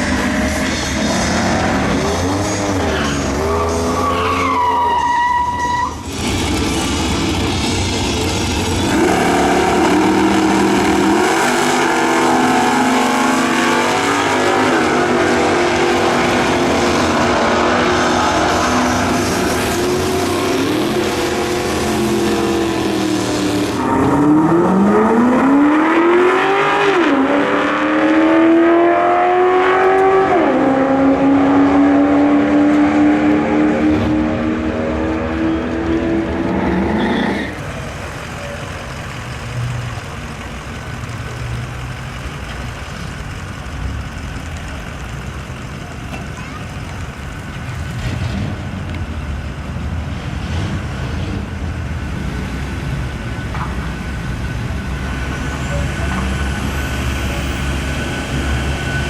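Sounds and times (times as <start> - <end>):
car engines accelerating: 0.0 - 59.0
tyres squealing: 2.2 - 7.0.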